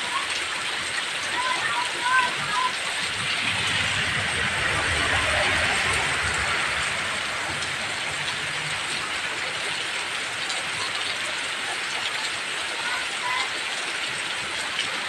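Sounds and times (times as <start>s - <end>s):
heavy rain: 0.0s - 15.0s
low rumble: 2.9s - 8.9s.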